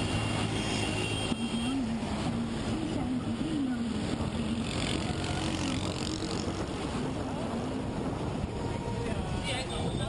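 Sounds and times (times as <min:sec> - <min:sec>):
wind rumble on microphone: 0:02.0 - 0:10.0.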